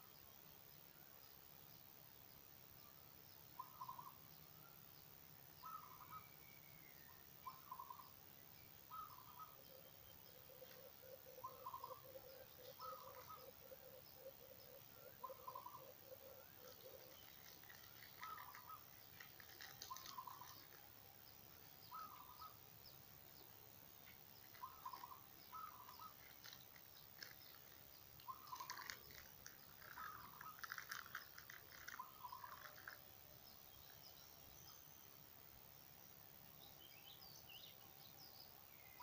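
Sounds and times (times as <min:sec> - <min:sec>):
faint bird calls: 0:02.8 - 0:04.9, 0:05.6 - 0:08.2, 0:08.9 - 0:35.2
soft crackling clicks: 0:16.4 - 0:21.0, 0:23.4 - 0:33.1.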